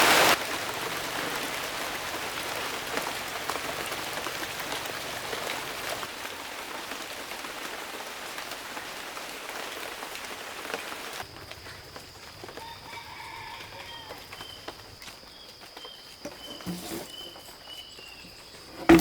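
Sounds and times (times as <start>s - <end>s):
steady rain hiss: 0.0s - 19.0s
raindrops ticking: 0.2s - 12.6s.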